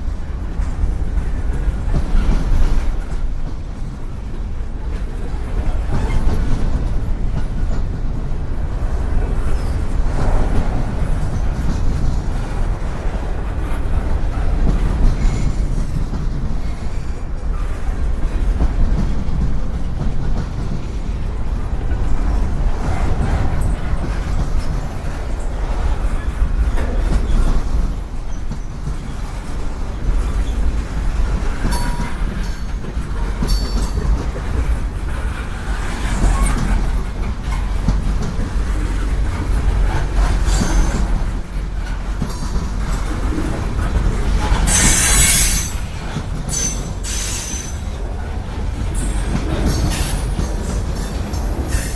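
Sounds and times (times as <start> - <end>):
clacking over rail joints: 0.0 - 51.9
steel wheels rumbling on rail: 0.0 - 51.9
high wheel squeal: 40.3 - 41.3, 44.4 - 47.9.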